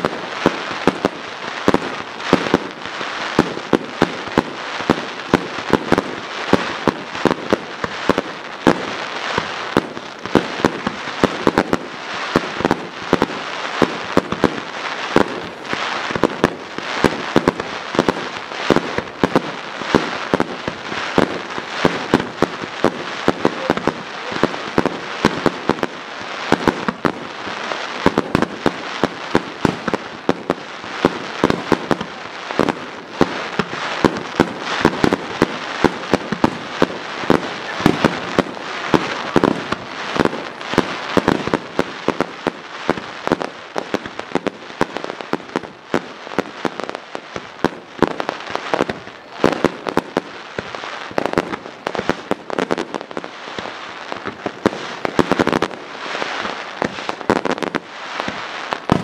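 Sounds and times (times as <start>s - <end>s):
crackling hiss: 0.0s - 59.0s
fireworks bangs: 0.0s - 59.0s.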